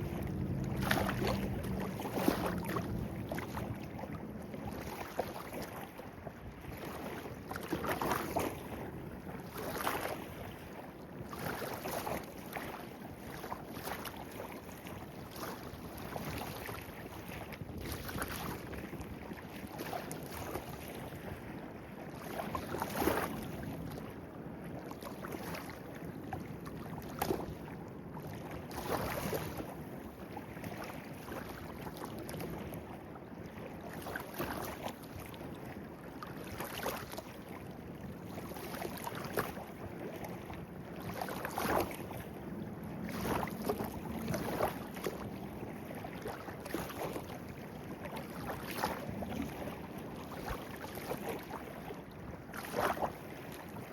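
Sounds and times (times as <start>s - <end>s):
stream running: 0.0s - 5.8s
water splashing and gurgling: 0.0s - 53.9s.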